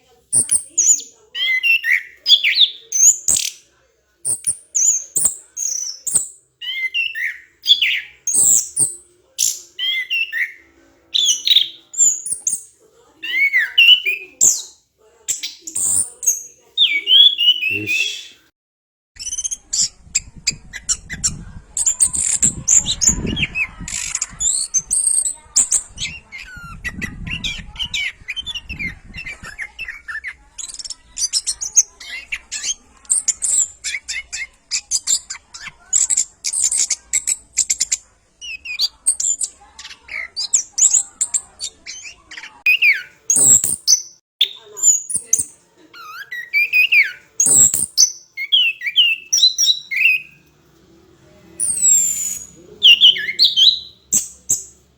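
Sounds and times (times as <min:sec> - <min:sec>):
thrush singing whistles and trills: 0:00.4 - 0:03.6, 0:04.3 - 0:10.6, 0:11.2 - 0:12.7, 0:13.3 - 0:18.5, 0:42.7 - 0:45.6, 0:46.2 - 0:50.4, 0:51.6 - 0:54.8.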